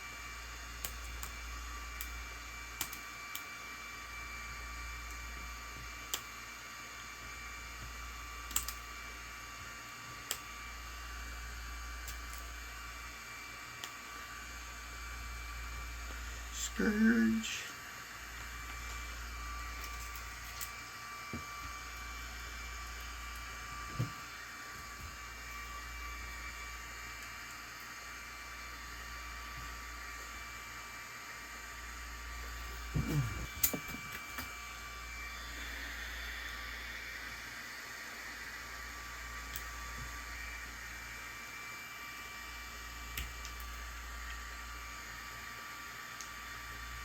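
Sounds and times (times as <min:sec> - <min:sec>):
hand tools clicking on phone: 0:08.5 - 0:08.8
faint thin hum: 0:32.6 - 0:34.5.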